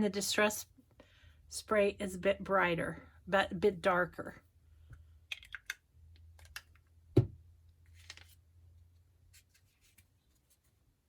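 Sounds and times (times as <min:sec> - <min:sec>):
object set down with thump: 0:07.2 - 0:07.4.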